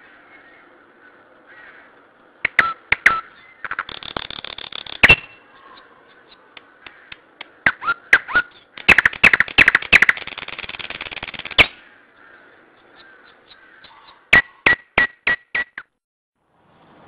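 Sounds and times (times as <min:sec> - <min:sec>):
bird chirps sliding down: 0:02.5 - 0:06.4
bird rattling call: 0:03.2 - 0:05.8, 0:07.7 - 0:11.9.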